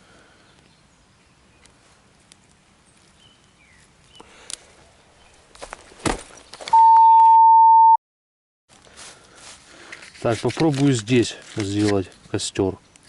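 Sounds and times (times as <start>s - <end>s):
footsteps in undergrowth: 5.3s - 6.7s, 8.7s - 12.4s
high-pitched censor bleep: 6.7s - 8.0s.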